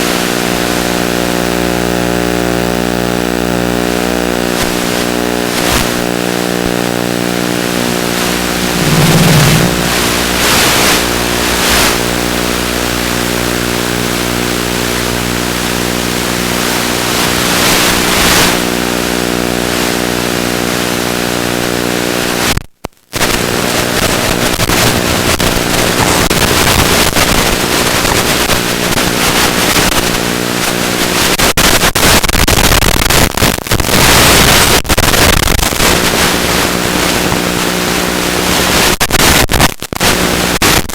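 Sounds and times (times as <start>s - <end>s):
electric motor and propeller whine: 8.2s - 10.5s
wind rush: 8.2s - 10.7s.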